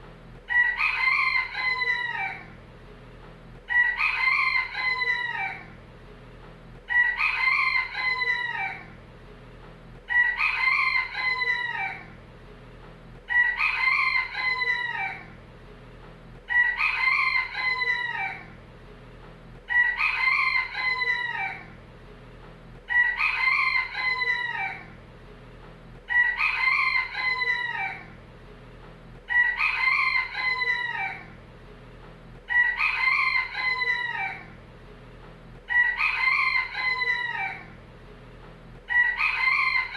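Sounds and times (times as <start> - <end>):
rooster crowing: 0.5 - 2.6, 3.7 - 5.8, 6.9 - 9.0, 10.1 - 12.2, 13.3 - 15.4, 16.5 - 18.6, 19.7 - 21.8, 22.9 - 25.0, 26.1 - 28.2, 29.3 - 31.4, 32.5 - 34.6, 35.7 - 37.8, 38.9 - 39.9.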